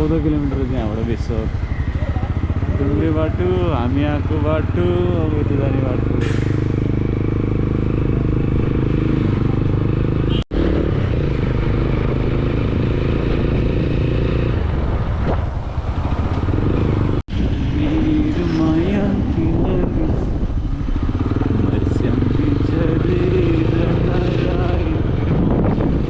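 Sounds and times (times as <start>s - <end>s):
motorcycle engine running: 0.0s - 6.1s, 6.9s - 26.0s
road and wind noise: 0.0s - 26.0s.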